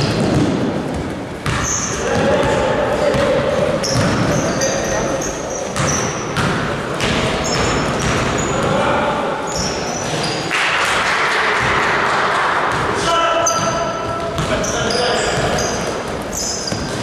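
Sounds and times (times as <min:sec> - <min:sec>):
basketball bouncing on gym floor: 0:00.0 - 0:04.8, 0:05.7 - 0:08.8, 0:11.4 - 0:17.0
voices echoing in a hall: 0:00.0 - 0:17.0
short high squeaks: 0:14.6 - 0:16.9.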